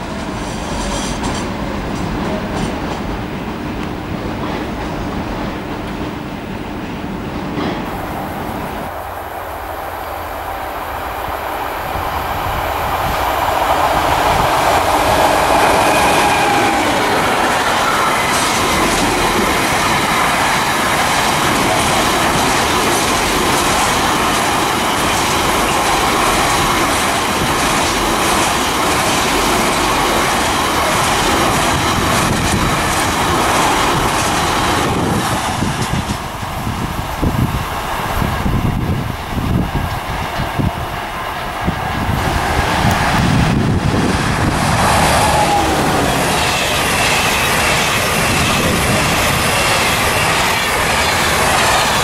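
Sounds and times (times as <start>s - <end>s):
freight train rumbling past: 0.0s - 52.0s
wheels clicking on rails: 11.9s - 52.0s.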